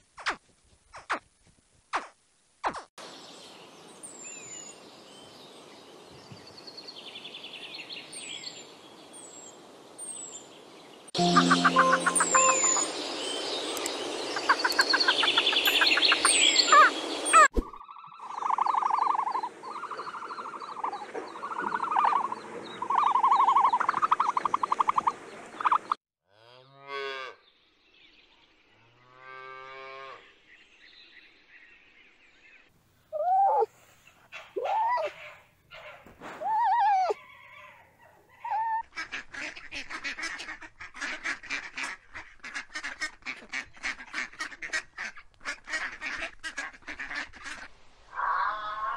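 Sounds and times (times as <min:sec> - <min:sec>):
overlapping bird calls: 0:11.2 - 0:26.0
short arching yelps: 0:33.2 - 0:33.7, 0:34.4 - 0:37.2.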